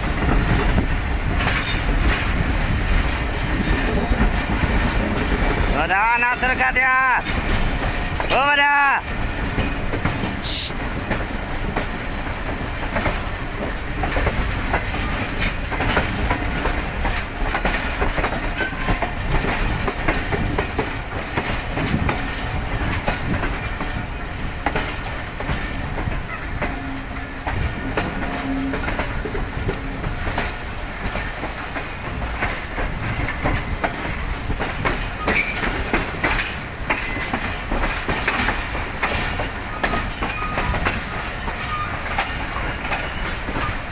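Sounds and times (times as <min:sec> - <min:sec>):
train wheels clacking on rail joints: 0:00.0 - 0:43.9
wheel squeal: 0:18.6 - 0:19.2, 0:41.6 - 0:42.3.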